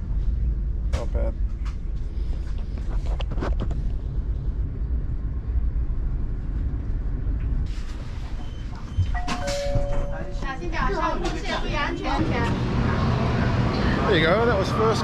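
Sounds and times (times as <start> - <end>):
train interior rumble: 0.0 - 15.0
two held tones: 9.2 - 10.5.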